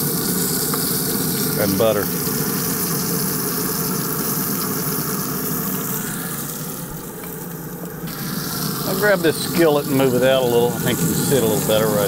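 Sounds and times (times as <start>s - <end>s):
frog legs sizzling in butter: 0.0s - 12.0s.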